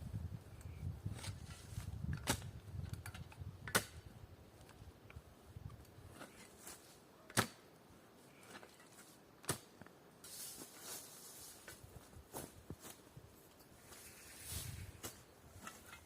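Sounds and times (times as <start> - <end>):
hissing rustle: 13.8 - 15.9.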